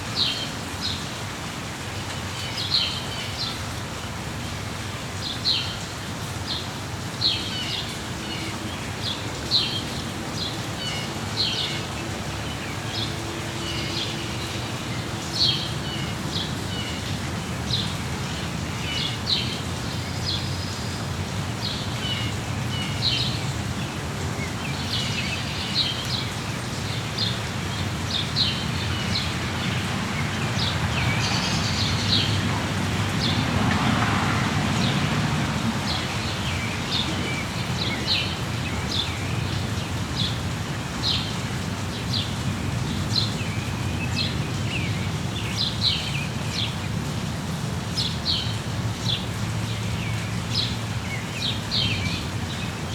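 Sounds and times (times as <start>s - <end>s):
rain falling: 0.0s - 52.9s
small birds chirping: 35.9s - 46.9s.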